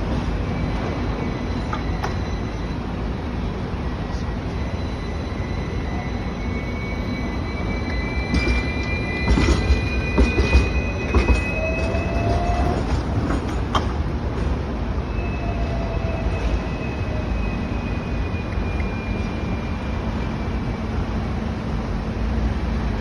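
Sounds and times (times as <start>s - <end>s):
clunks over track: 0.0s - 2.6s, 7.8s - 15.0s
tram rumbling on rails: 0.0s - 23.0s
high wheel squeal: 0.2s - 13.4s.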